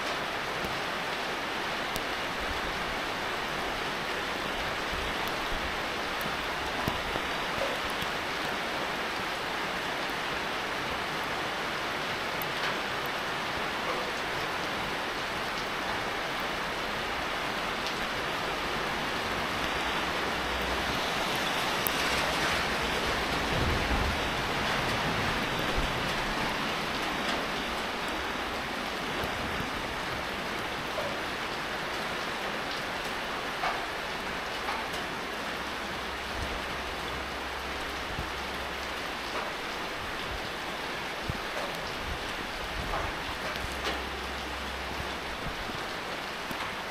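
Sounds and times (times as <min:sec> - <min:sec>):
steady rain falling: 0:00.0 - 0:46.9
raindrops ticking: 0:04.9 - 0:08.8, 0:19.6 - 0:46.9.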